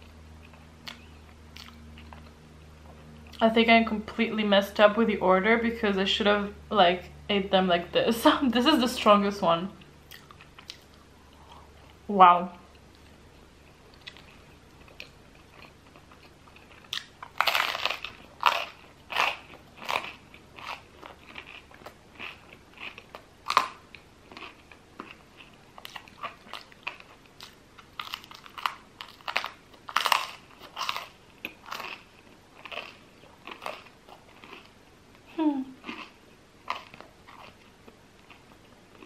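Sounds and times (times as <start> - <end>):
chewing crusty bread: 0.0 - 3.4, 12.7 - 39.0.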